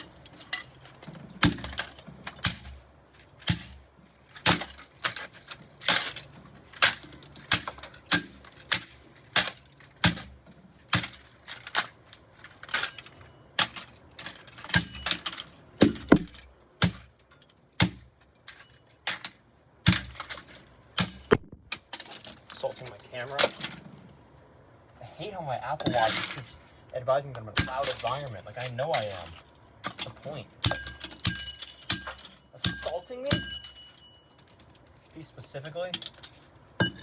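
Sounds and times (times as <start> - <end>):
plastic toy gun being smashed: 1.4 - 2.8, 3.4 - 22.5.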